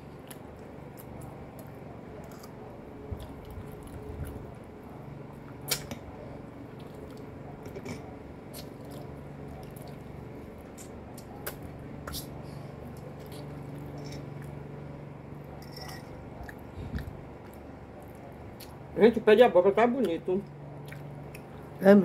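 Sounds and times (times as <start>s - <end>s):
person chewing: 0.2s - 2.6s, 6.6s - 14.6s, 15.9s - 18.9s, 20.7s - 21.8s.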